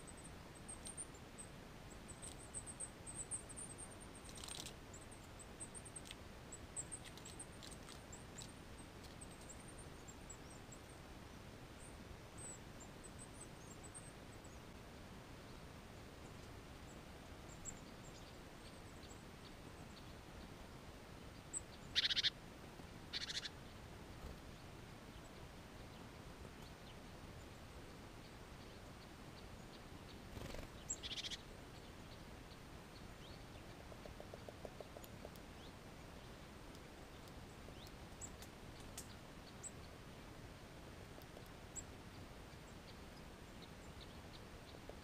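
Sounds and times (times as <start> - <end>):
faint outdoor background: 0.0 - 45.0
short sharp bird calls: 21.9 - 22.3, 23.1 - 23.5.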